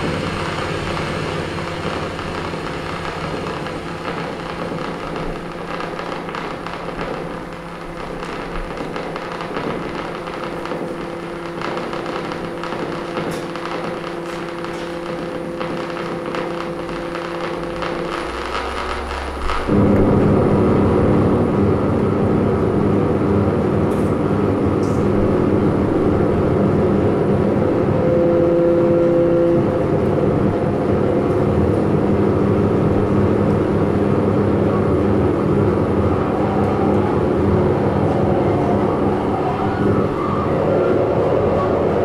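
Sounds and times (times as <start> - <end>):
low hum: 0.0 - 8.7, 12.5 - 42.0
rumbling noise drone: 0.0 - 42.0
higher held tones: 27.4 - 31.6, 34.3 - 42.0.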